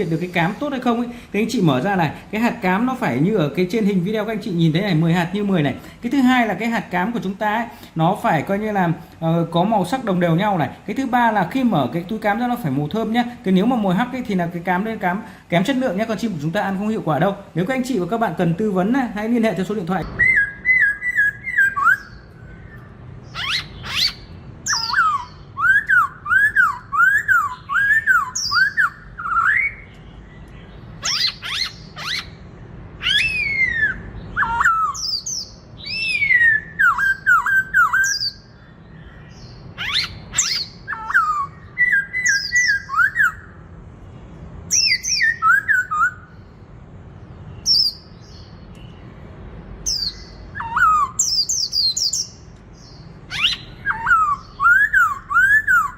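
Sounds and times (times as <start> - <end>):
bird whistled song: 20.0 - 43.6, 44.7 - 46.5, 47.5 - 49.1, 49.8 - 55.9
sharp high bird calls: 20.0 - 43.7, 44.7 - 46.5, 49.8 - 55.9.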